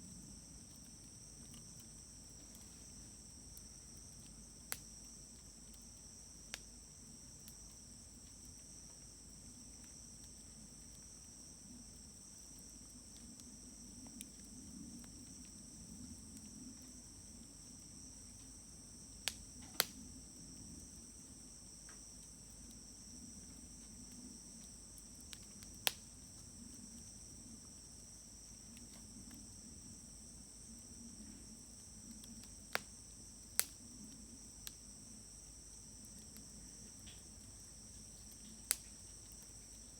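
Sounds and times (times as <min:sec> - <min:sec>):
crickets chirping: 0:00.0 - 0:39.9
fire rustling: 0:17.3 - 0:20.2, 0:23.6 - 0:27.0, 0:31.4 - 0:34.9, 0:36.0 - 0:39.9
firewood popping: 0:19.2 - 0:20.0, 0:38.5 - 0:39.0.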